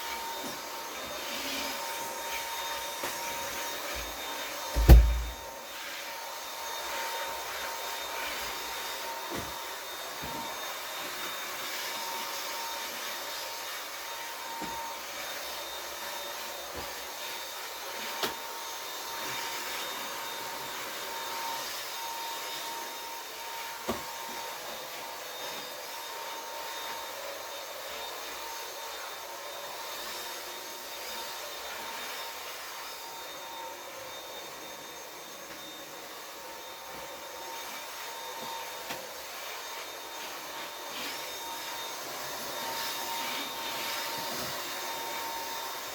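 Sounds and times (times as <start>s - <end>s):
vacuum cleaner whining: 0.0s - 45.9s
sharp knock: 4.8s - 5.4s.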